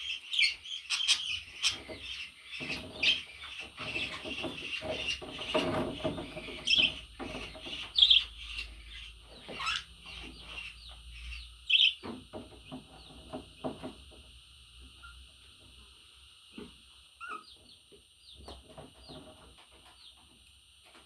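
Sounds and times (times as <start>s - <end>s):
budgerigar chirping and warbling: 0.0s - 12.0s, 17.2s - 17.6s.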